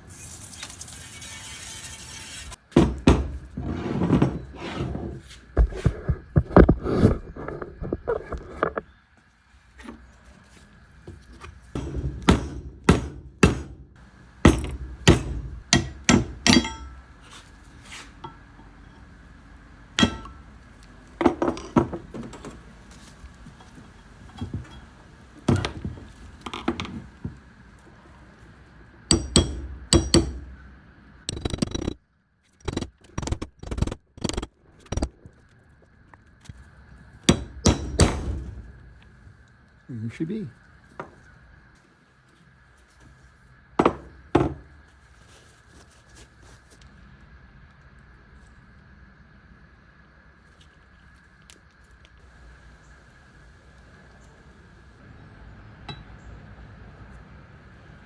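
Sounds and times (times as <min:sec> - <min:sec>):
metal tools clinking: 0:15.9 - 0:17.0.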